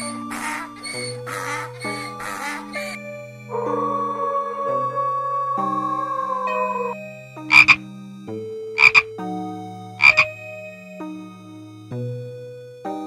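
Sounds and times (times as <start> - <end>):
wolf howling: 0.0 - 7.8
soft background music: 0.0 - 13.0
frog croaking: 0.1 - 7.9, 8.8 - 9.1, 10.0 - 10.4.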